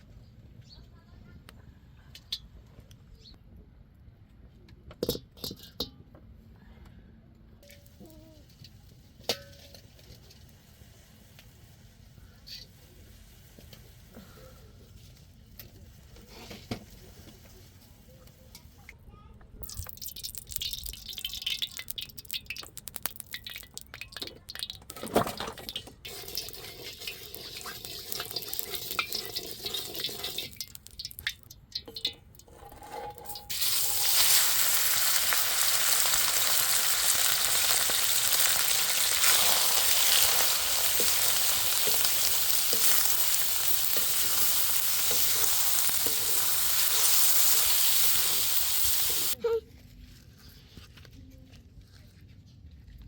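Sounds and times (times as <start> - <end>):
food sizzling in hot oil: 19.6 - 32.1, 33.2 - 49.4
cooking utensils clicking: 19.7 - 49.4.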